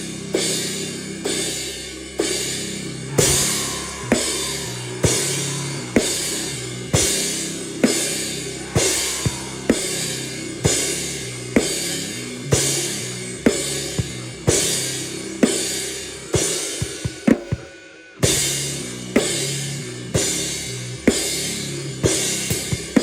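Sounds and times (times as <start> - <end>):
noise rock music: 2.3 - 17.3.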